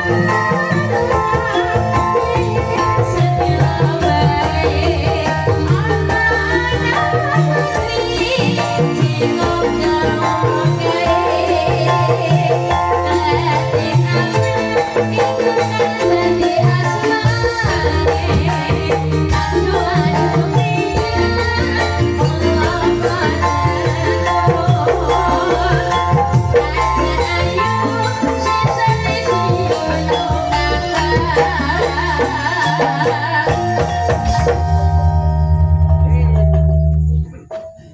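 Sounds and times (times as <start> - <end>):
bamboo xylophones playing: 0.0 - 37.9
shaker-like percussion: 0.0 - 37.9
deep bass tone: 33.9 - 37.5.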